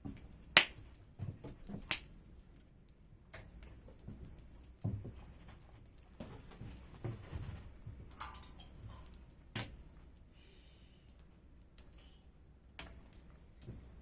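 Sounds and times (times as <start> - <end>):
campfire crackling: 0.0 - 14.0
sharp fire pops: 1.8 - 2.2.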